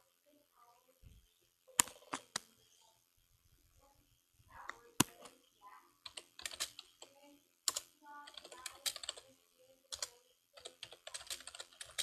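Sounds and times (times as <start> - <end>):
sharp clicks and taps: 1.8 - 2.6, 4.6 - 5.4, 6.1 - 9.3.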